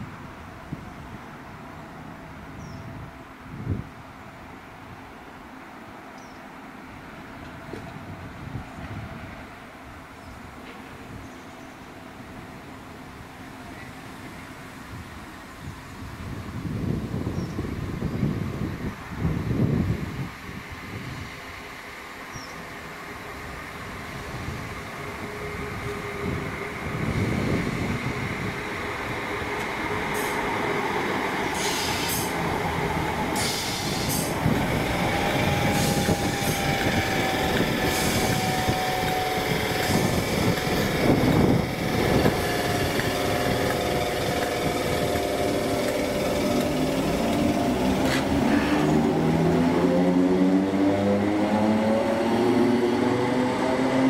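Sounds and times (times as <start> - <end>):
train running on rails: 0.0 - 54.0
train engine pitch rising: 22.6 - 54.0.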